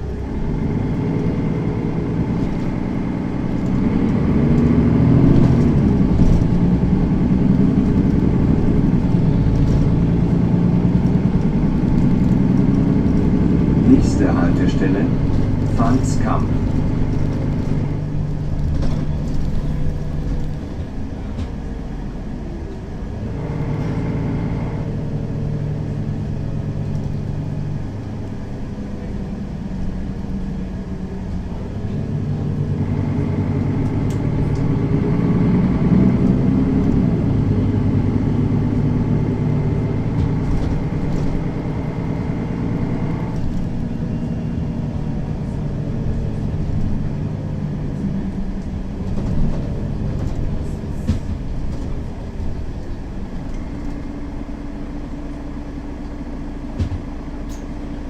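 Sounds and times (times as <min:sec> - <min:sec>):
bus diesel engine changing gears: 0:00.0 - 0:58.0.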